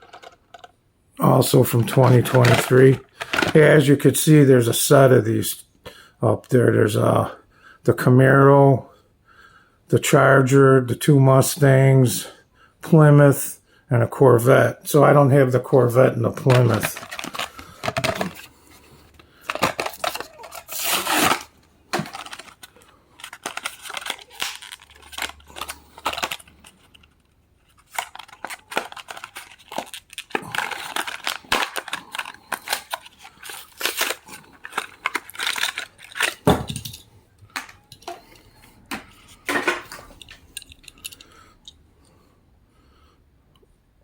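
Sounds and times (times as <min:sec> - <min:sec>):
plastic crinkling and clicking: 0:00.0 - 0:03.8, 0:16.3 - 0:41.8
packaging being torn open: 0:01.7 - 0:03.7, 0:19.4 - 0:27.1, 0:27.7 - 0:36.5.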